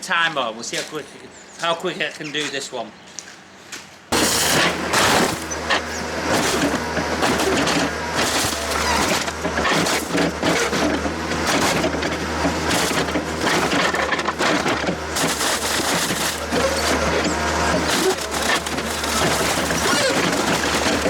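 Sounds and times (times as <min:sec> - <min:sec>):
heavy machine engine droning: 0:04.1 - 0:21.0
metal crunching and tearing: 0:04.1 - 0:21.0.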